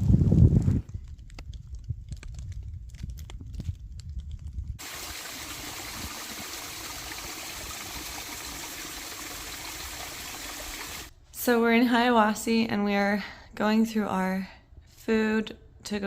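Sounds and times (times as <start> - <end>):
wind rumble on microphone: 0.0 - 4.8
rain hissing: 4.8 - 11.1.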